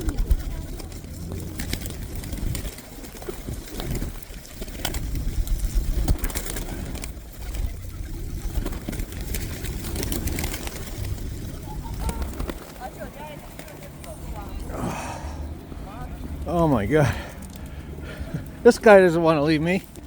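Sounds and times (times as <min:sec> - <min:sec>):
pigeon wings flapping: 0:00.0 - 0:15.0, 0:19.7 - 0:20.0
pigeons cooing: 0:00.0 - 0:19.0.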